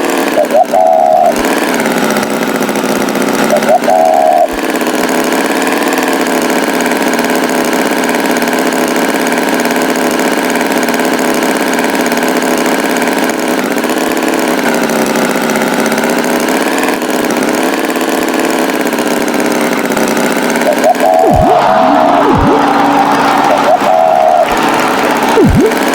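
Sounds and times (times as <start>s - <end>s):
tractor engine idling: 0.0s - 0.5s, 1.3s - 25.9s.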